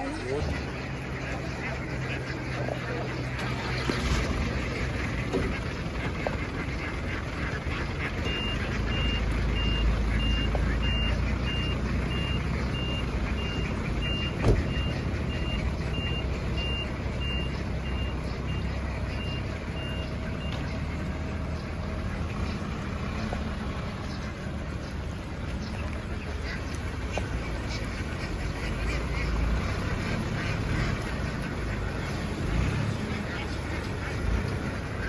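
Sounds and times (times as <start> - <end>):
low engine rumble: 0.0 - 35.0
truck reversing alarm beeps: 8.1 - 20.9.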